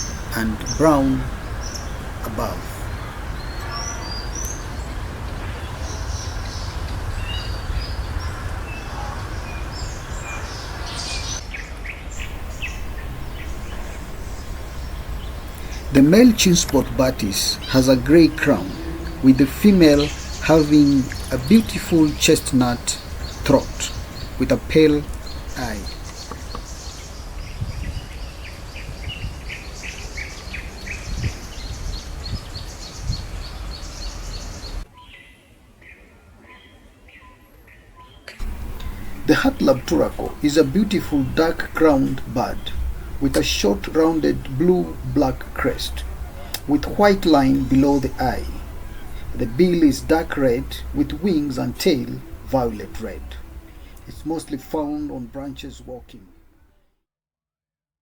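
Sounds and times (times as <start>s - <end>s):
small birds chirping: 0.0s - 56.6s
low background rumble: 12.1s - 27.1s, 38.4s - 56.6s.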